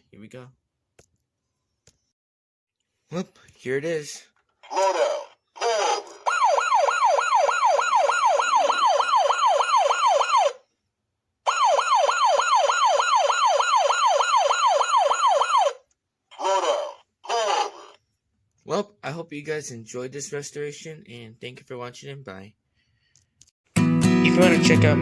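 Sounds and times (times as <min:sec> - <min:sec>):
toy police car siren yelping: 0:04.7 - 0:10.7, 0:11.5 - 0:18.0.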